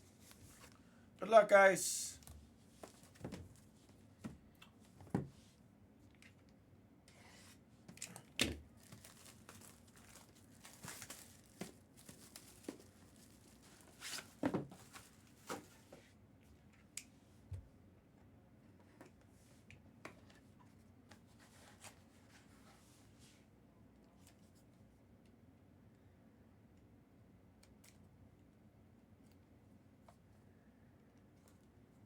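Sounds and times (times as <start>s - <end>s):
wrapper tearing and crinkling: 8.8s - 13.7s.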